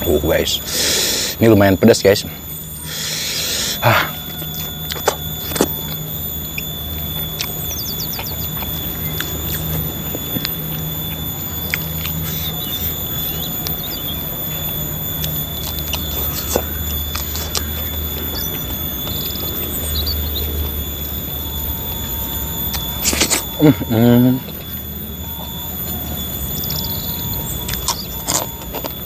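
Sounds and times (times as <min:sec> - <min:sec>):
insect high-pitched whine: 0:00.0 - 0:29.0
person chewing and lip smacking: 0:02.6 - 0:20.8, 0:22.7 - 0:24.8, 0:26.6 - 0:29.0.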